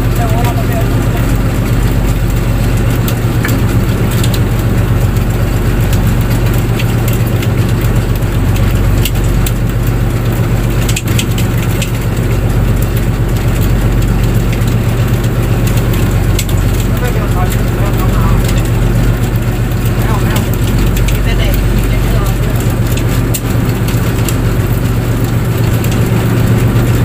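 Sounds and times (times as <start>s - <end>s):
boat engine droning: 0.0s - 27.0s
sharp clicks and crackles: 0.0s - 27.0s.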